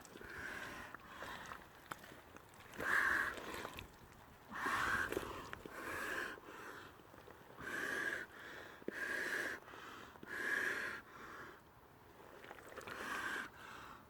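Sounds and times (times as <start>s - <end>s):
person breathing heavily: 4.5s - 7.0s.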